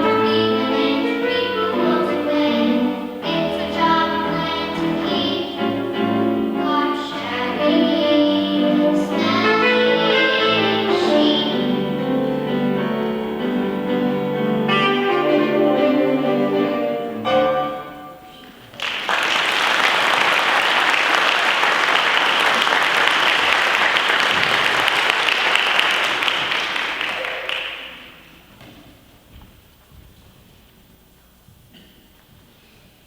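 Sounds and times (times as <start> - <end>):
piano-led instrumental music: 0.0 - 18.4
audience applauding: 18.4 - 28.4.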